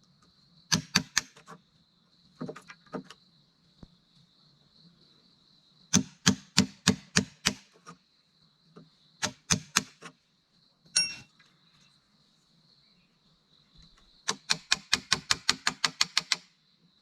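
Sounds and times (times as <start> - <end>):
hand tool striking wood: 0.7 - 1.4, 6.0 - 7.7, 9.2 - 10.1.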